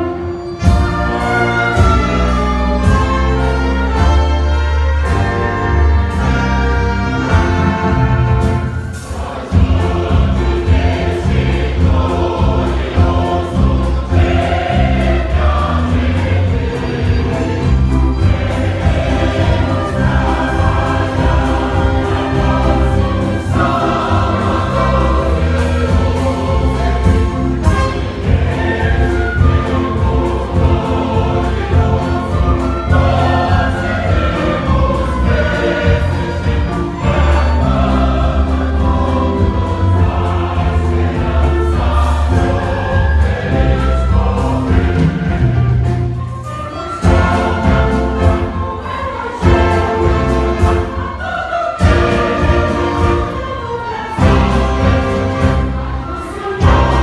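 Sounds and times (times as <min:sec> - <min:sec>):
choir singing a hymn: 0:00.0 - 0:57.0
instrumental accompaniment with bass: 0:00.0 - 0:57.0.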